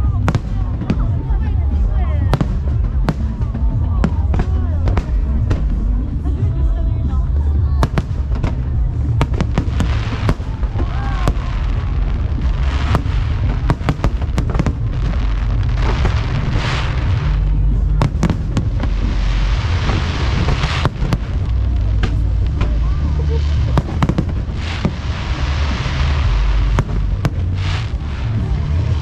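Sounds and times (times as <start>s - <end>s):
low rumble: 0.0s - 29.0s
hissing crackle: 7.8s - 29.0s.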